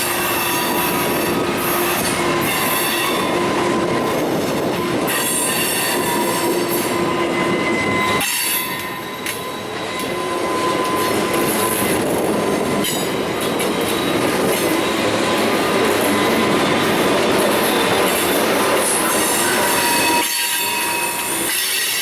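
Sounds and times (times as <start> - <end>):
train cars running noise: 0.0 - 22.0
train wheels squealing on rails: 0.0 - 22.0.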